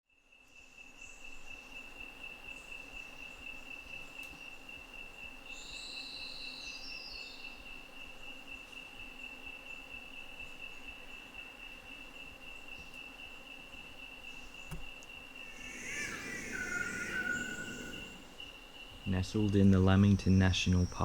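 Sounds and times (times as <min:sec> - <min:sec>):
insect trilling: 0:10.6 - 0:21.0
high chirping call: 0:15.5 - 0:18.4.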